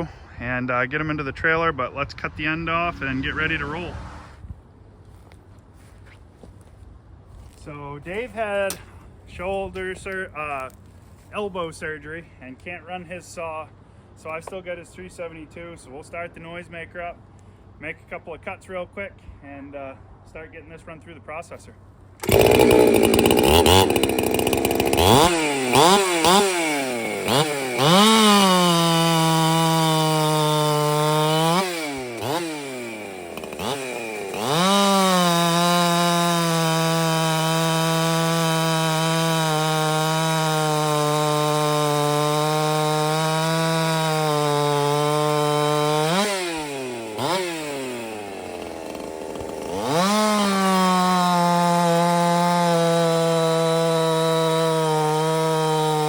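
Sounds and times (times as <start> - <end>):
chainsaw revving and cutting log: 2.4 - 4.3, 22.2 - 56.0.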